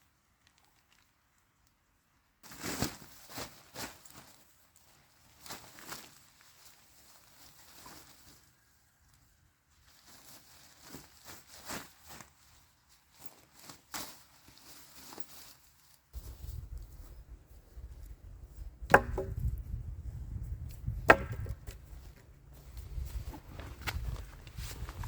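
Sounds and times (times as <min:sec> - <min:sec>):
rustling and crunching on forest floor: 0:02.4 - 0:25.0
axe chop into wood: 0:18.9 - 0:19.6, 0:20.8 - 0:21.8.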